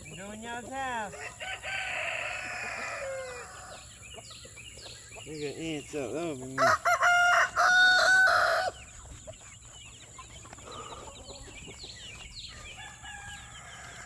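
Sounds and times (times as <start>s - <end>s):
chickens chirping and clucking: 0.0s - 14.0s
rooster crowing: 1.1s - 3.8s, 6.6s - 8.8s, 12.6s - 14.0s.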